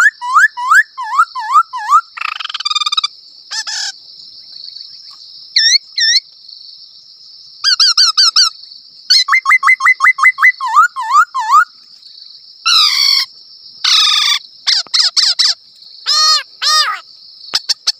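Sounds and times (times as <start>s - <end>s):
imitated bird chirps: 0.0s - 6.3s, 7.6s - 11.9s, 12.7s - 17.9s.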